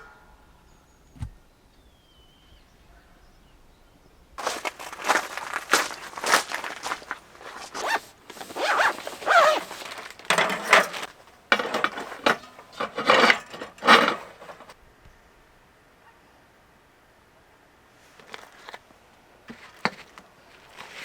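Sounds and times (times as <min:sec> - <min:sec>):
scraping rustling handling noises: 0:04.4 - 0:14.8, 0:18.1 - 0:18.9, 0:19.5 - 0:21.0.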